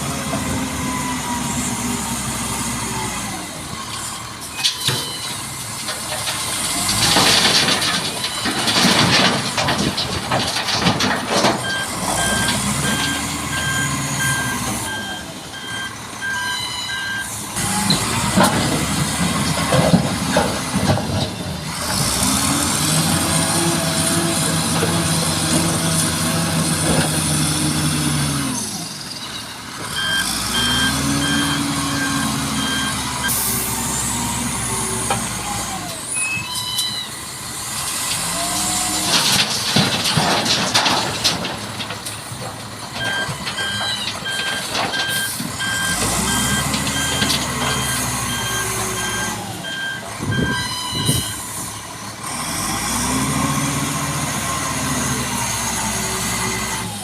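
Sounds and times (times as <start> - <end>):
diesel engines revving: 0.0 - 57.0
reversing alarm beeping: 11.6 - 17.4, 29.2 - 33.6, 36.1 - 37.2, 43.0 - 51.5.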